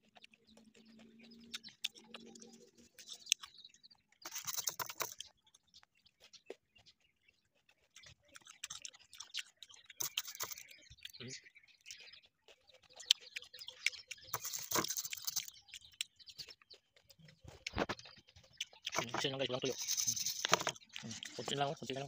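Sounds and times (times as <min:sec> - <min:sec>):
person chewing with wet mouth clicks: 0:00.0 - 0:03.6, 0:06.2 - 0:11.2, 0:11.8 - 0:19.2.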